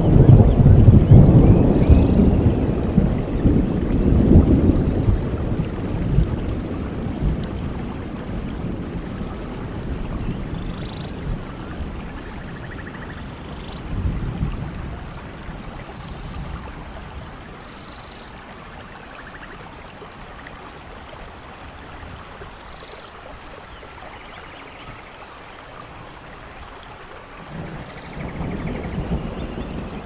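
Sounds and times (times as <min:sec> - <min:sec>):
rolling thunder: 0:00.0 - 0:17.5, 0:27.4 - 0:30.0
steady rain: 0:00.0 - 0:30.0.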